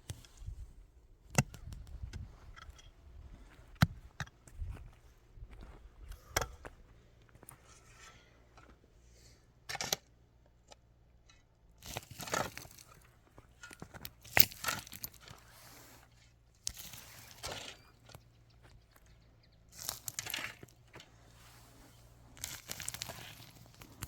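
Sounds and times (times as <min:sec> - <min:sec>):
rustling and crackling handling: 0:11.8 - 0:24.0.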